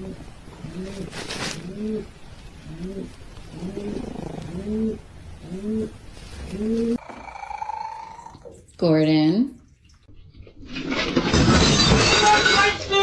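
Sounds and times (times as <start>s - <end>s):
animal cooing calls: 0.0s - 8.6s.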